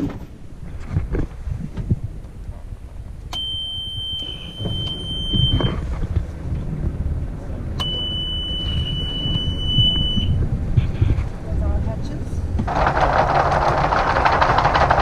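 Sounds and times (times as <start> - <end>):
low rumble: 0.0 - 15.0
high electronic beeps: 7.8 - 10.9.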